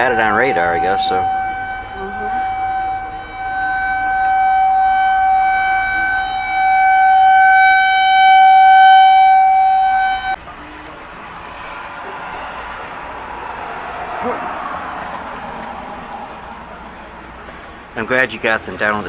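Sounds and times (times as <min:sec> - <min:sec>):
warning siren steady tone: 0:00.0 - 0:10.4.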